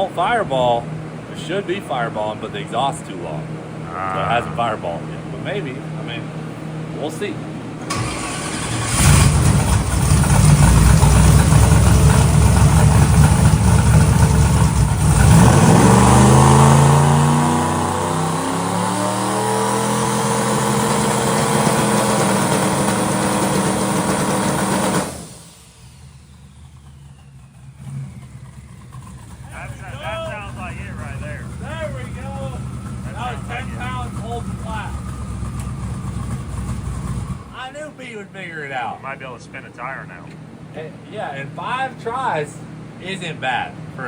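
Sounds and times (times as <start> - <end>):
turbo engine revving under load: 7.8 - 37.6.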